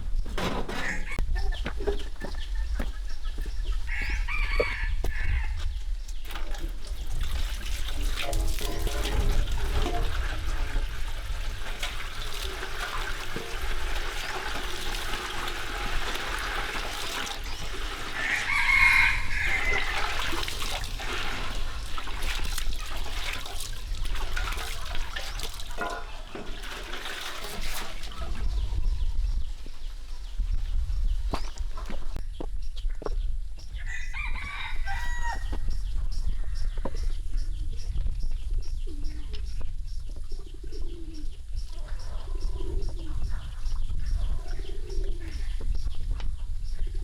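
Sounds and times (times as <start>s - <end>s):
rooster crowing: 3.9s - 5.6s, 18.0s - 20.4s, 33.8s - 35.6s.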